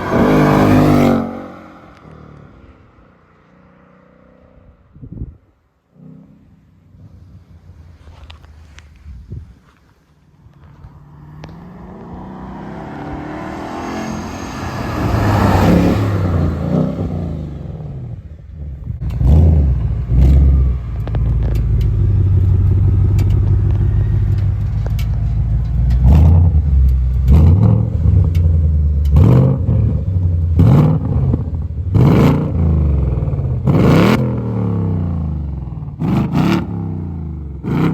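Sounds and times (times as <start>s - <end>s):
car exhaust revving: 11.4s - 37.9s
car engine idling: 18.7s - 29.3s.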